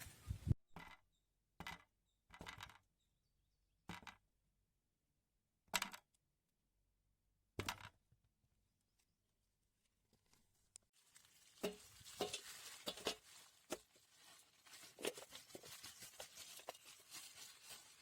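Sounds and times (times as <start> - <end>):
chillies frying in oil bursts: 11.0 - 18.0.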